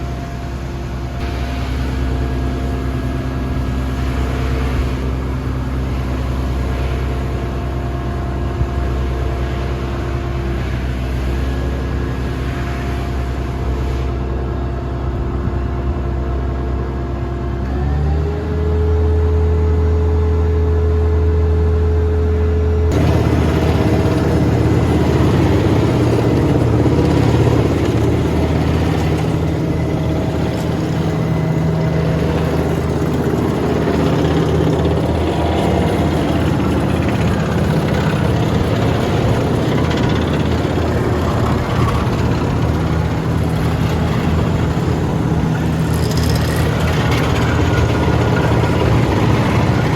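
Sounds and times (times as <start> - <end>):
noisy busy machine sound: 0.0 - 49.9
diesel engine revving: 22.8 - 49.9.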